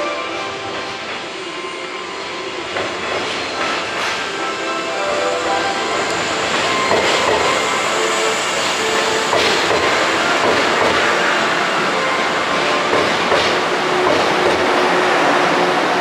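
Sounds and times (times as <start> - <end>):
train wheels rumbling on rail: 0.0 - 16.0
clacks over the track: 2.6 - 4.3, 6.0 - 7.8, 8.6 - 16.0.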